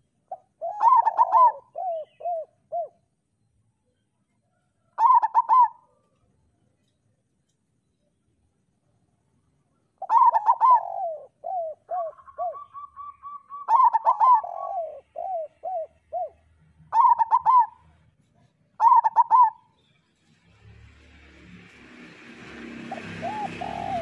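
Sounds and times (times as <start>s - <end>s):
dove cooing: 0.0s - 3.0s, 5.0s - 6.0s, 10.0s - 18.0s, 18.8s - 19.7s, 22.8s - 24.0s.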